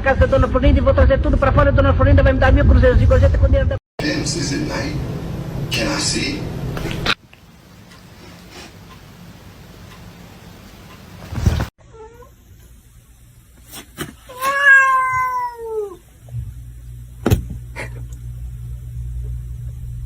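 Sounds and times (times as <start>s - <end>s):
cat meowing: 14.3s - 16.0s.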